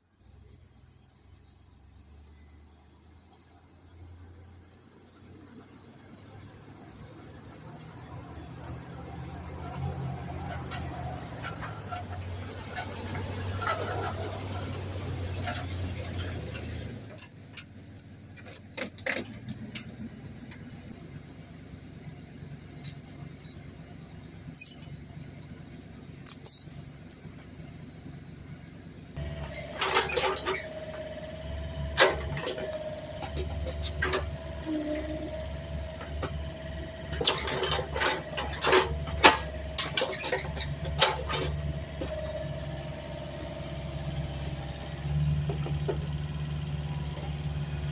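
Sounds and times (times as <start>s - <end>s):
skidder engine running low: 0.0s - 26.3s, 26.9s - 47.9s
metal clinks and knocks: 22.8s - 23.7s, 24.6s - 25.6s, 26.2s - 26.9s.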